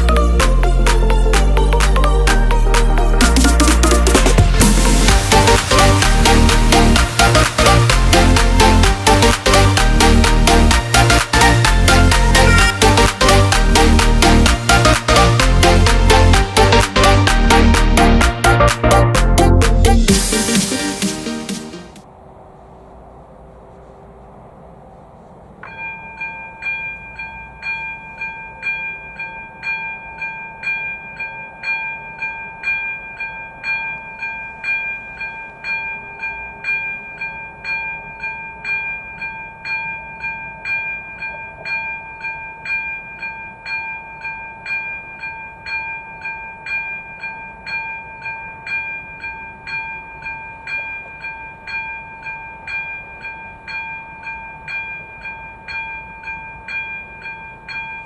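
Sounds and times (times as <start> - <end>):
level crossing bell ringing: 0.0 - 19.0, 25.6 - 58.0.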